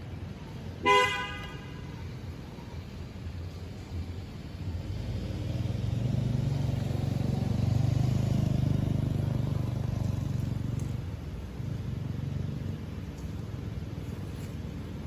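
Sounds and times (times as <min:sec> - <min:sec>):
motor vehicle passing by: 0:03.5 - 0:13.1.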